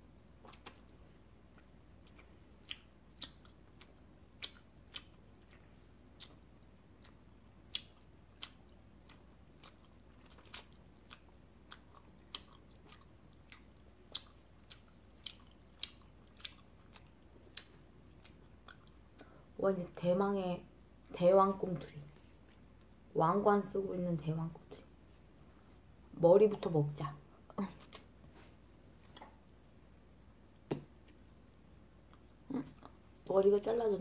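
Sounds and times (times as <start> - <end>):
sticky chewing mouth clicks: 1.6 - 6.4, 7.0 - 19.3.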